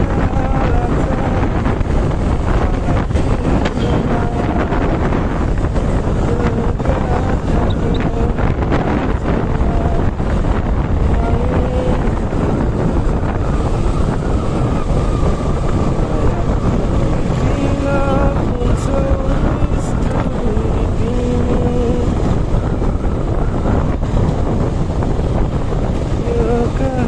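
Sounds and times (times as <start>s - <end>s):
motorcycle engine running: 0.0s - 27.0s
wind rushing over microphone: 0.0s - 27.0s.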